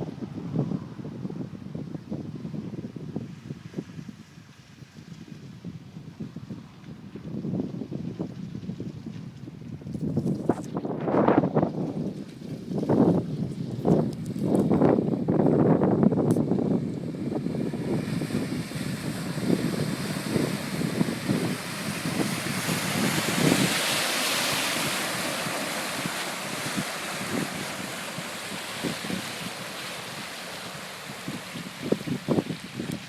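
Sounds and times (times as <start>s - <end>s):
water splashing and sloshing: 10.2s - 14.7s, 16.9s - 33.0s.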